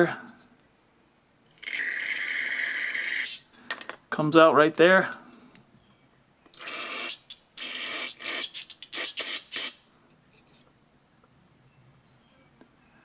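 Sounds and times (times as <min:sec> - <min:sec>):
aerosol spray hissing: 0:06.6 - 0:09.9.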